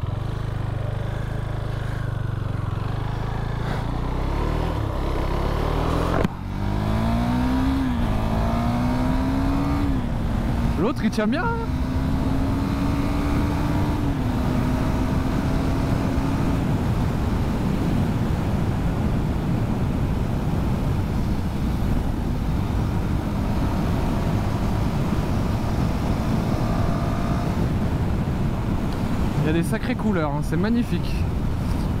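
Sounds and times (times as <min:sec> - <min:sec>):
motorcycle engine running: 0:00.0 - 0:29.6
wind noise: 0:31.2 - 0:32.0.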